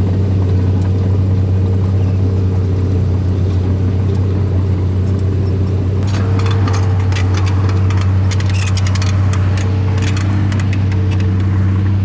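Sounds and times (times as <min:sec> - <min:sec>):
model bulldozer engine drone: 0:00.0 - 0:12.0
clicks and rattles: 0:03.4 - 0:11.6.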